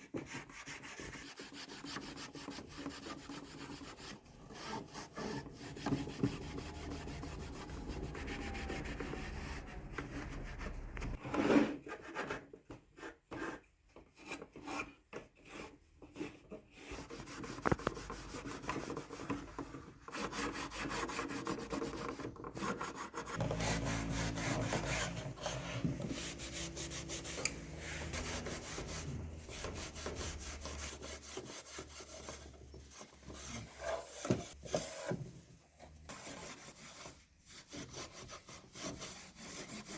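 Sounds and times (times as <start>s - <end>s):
abrasive tool scraping wood: 0.3s - 11.8s, 20.1s - 35.2s.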